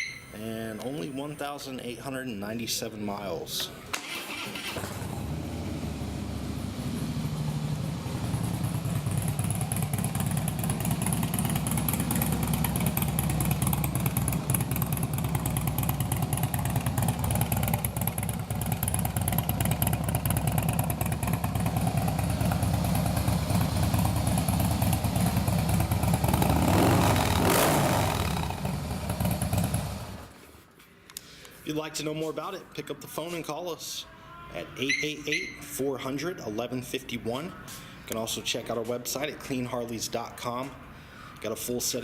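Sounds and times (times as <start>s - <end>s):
motorcycle engine idling: 4.8s - 30.3s.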